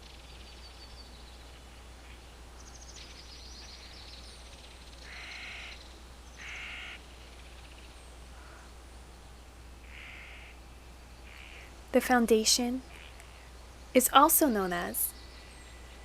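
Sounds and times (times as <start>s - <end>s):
low steady hum: 0.0s - 16.0s
harsh bird calls: 5.0s - 7.0s, 11.2s - 11.8s, 12.8s - 14.1s.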